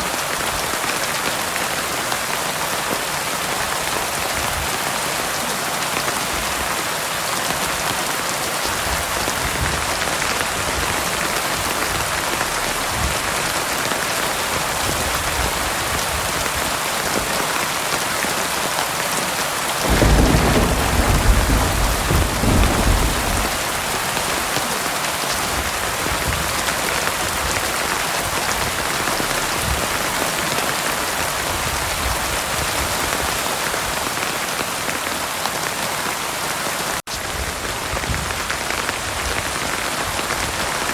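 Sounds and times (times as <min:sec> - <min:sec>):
heavy rain falling: 0:00.0 - 0:40.9
thunder rumbling: 0:19.8 - 0:24.7.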